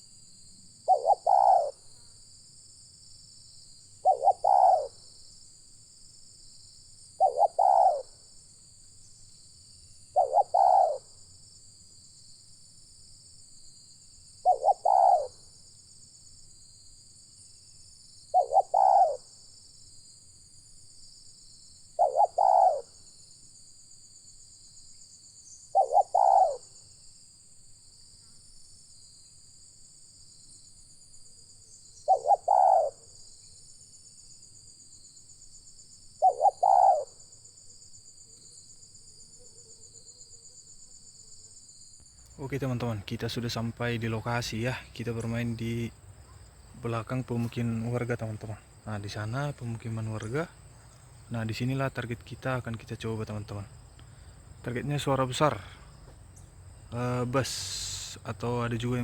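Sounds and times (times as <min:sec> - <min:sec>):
high insect drone: 0:00.0 - 0:59.0
dove cooing: 0:00.8 - 0:01.9, 0:04.0 - 0:05.0, 0:07.2 - 0:08.2, 0:10.2 - 0:11.2, 0:14.4 - 0:15.5, 0:18.3 - 0:19.3, 0:22.0 - 0:22.9, 0:25.7 - 0:26.7, 0:32.1 - 0:33.0, 0:36.2 - 0:37.2, 0:42.4 - 0:56.2, 0:56.9 - 0:59.0.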